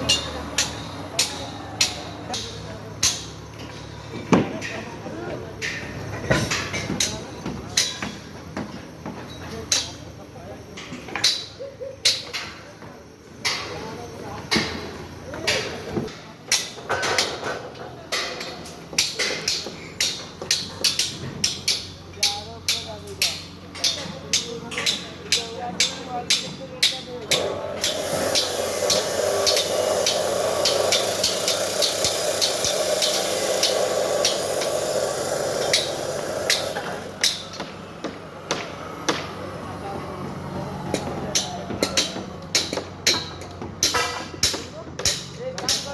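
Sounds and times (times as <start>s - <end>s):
steady hiss: 27.4s - 37.5s.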